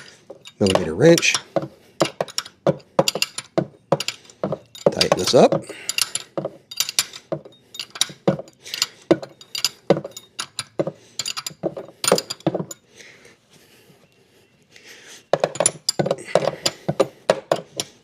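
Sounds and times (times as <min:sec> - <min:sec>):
metal wrench clicking: 0:00.0 - 0:12.4.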